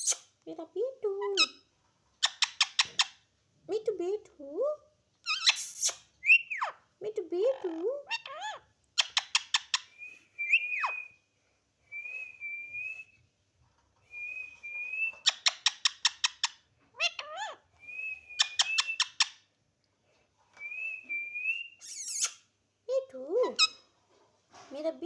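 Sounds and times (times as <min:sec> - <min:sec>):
parrot chirping rapidly: 0:00.0 - 0:00.2, 0:01.2 - 0:01.6, 0:02.2 - 0:03.2, 0:05.2 - 0:06.8, 0:08.0 - 0:11.0, 0:15.1 - 0:17.7, 0:18.4 - 0:19.4, 0:21.8 - 0:22.4, 0:23.4 - 0:23.9
parrot whistling: 0:09.7 - 0:11.2, 0:17.2 - 0:19.3, 0:20.6 - 0:22.4.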